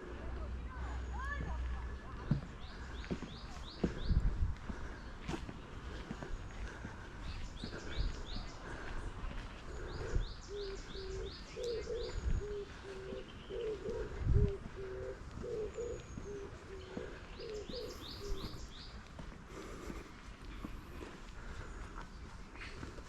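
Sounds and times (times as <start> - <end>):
dove cooing: 9.8 - 18.6.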